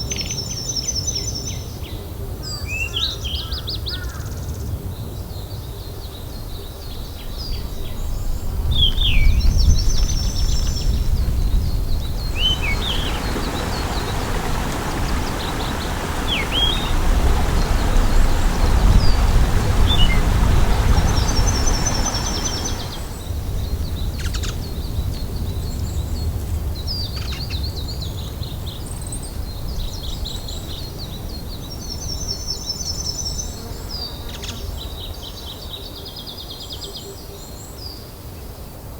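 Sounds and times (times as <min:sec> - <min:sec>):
small birds trilling and chirping: 0:05.0 - 0:38.1
broad rushing noise: 0:10.4 - 0:23.4.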